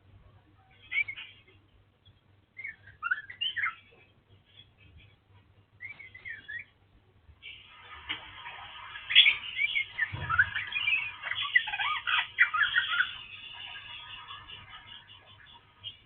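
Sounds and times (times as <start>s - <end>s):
bird singing whistled notes: 5.8s - 6.7s.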